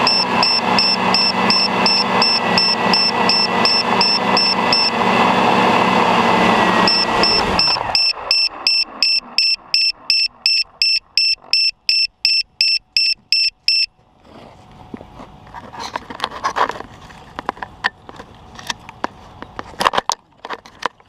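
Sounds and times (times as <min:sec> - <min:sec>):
rapid high beeps: 0:00.0 - 0:05.0, 0:06.8 - 0:13.9
motors whirring down: 0:00.0 - 0:13.9.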